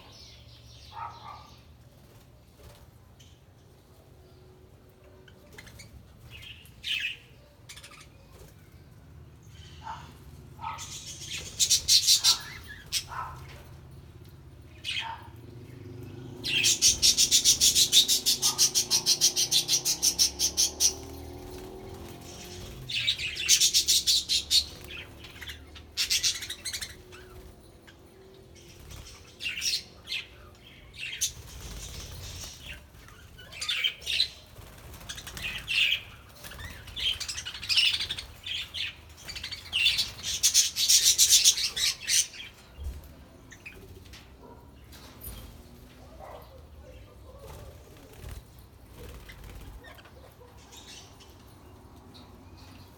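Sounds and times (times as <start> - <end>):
budgerigars chirping and chattering: 9.5 - 13.8, 14.7 - 45.4, 49.0 - 51.5.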